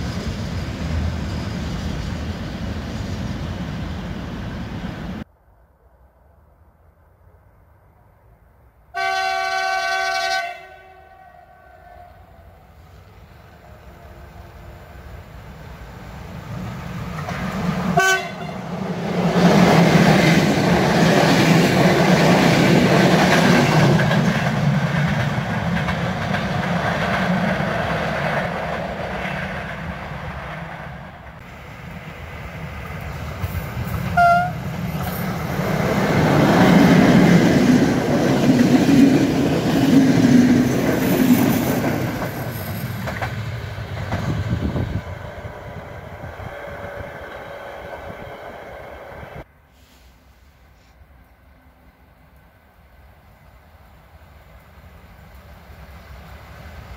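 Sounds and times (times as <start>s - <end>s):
train passing rumble: 0.0s - 56.9s
train horn: 8.9s - 12.6s, 18.0s - 18.6s, 34.0s - 34.7s
wheels clacking over rail joints: 32.8s - 44.5s.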